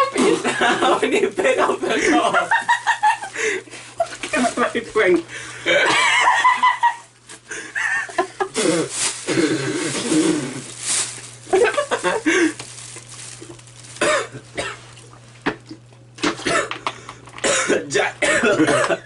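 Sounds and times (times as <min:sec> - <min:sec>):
person coughing: 0:08.4 - 0:10.7, 0:14.0 - 0:14.8, 0:16.2 - 0:19.0.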